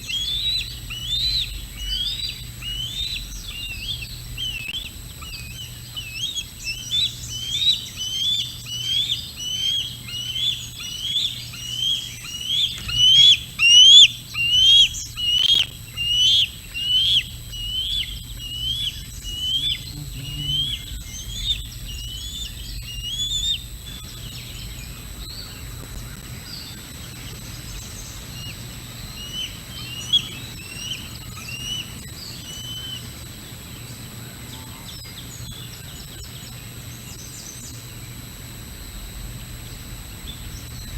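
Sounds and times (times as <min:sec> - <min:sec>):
bird calling in rising notes: 0:00.0 - 0:26.9.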